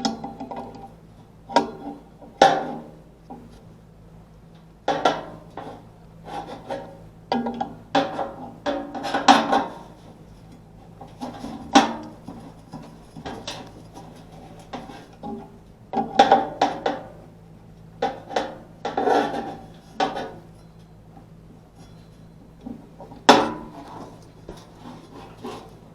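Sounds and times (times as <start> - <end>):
steady low hum: 0.0 - 25.9
hand tools and metal parts clinking: 19.3 - 21.0, 21.7 - 25.8.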